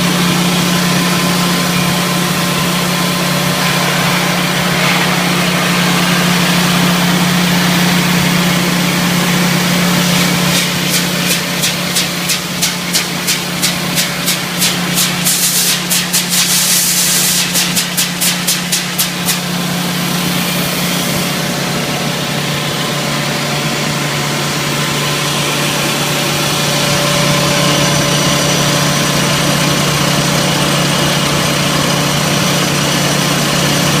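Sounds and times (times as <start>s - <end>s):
rapid compressor pulses: 0.0s - 22.8s
air compressor humming and hissing: 0.0s - 34.0s.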